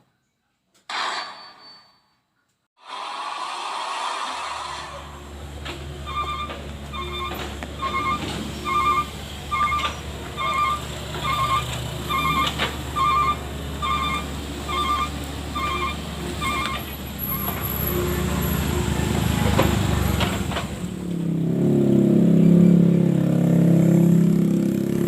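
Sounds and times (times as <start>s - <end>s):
diesel engine running: 4.6s - 25.0s
warning alarm beeping: 6.0s - 17.5s.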